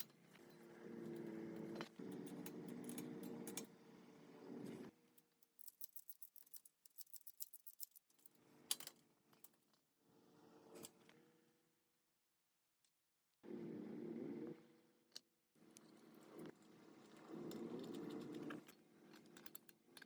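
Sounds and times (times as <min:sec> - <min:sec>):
light irregular clicks and ticks: 0:05.2 - 0:09.6.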